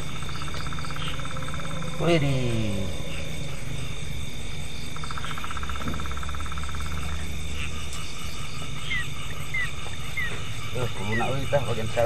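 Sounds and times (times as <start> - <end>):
low steady rumble: 0.0 - 8.9
high-pitched insect drone: 0.0 - 12.0
rapid pulsed frog trill: 0.0 - 12.0.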